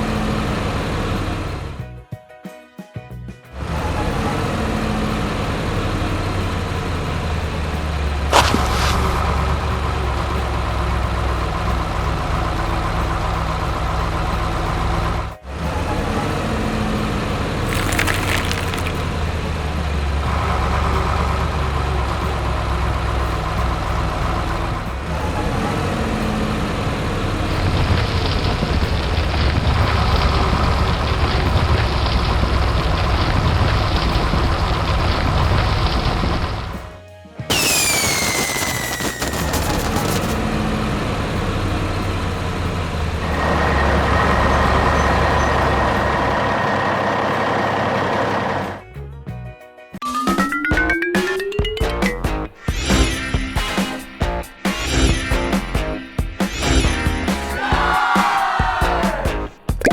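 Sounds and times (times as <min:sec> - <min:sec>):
heavy vehicle engine running: 0:00.0 - 0:01.8, 0:03.6 - 0:36.9, 0:38.9 - 0:48.8.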